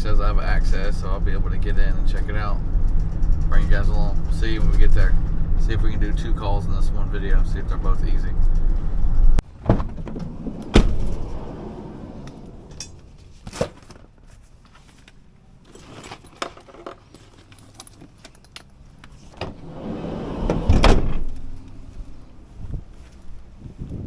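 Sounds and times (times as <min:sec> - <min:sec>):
light rattling: 0:00.0 - 0:13.5
scattered clicks and knocks: 0:00.6 - 0:06.4
handling noise: 0:01.0 - 0:06.4.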